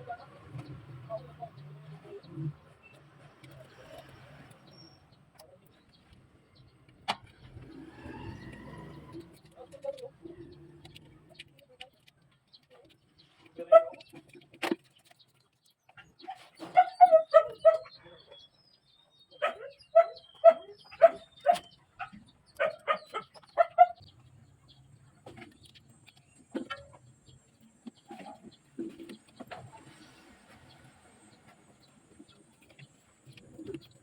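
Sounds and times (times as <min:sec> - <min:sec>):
dog barking: 0:13.6 - 0:14.0, 0:16.7 - 0:17.9, 0:19.4 - 0:24.0.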